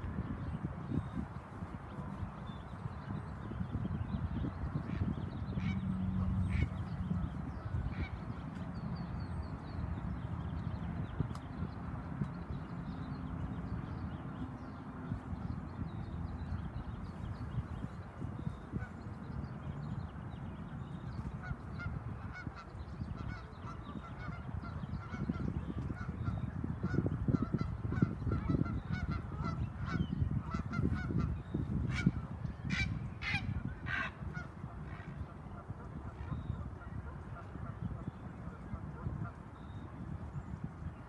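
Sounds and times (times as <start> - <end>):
geese honking: 32.7 - 34.5.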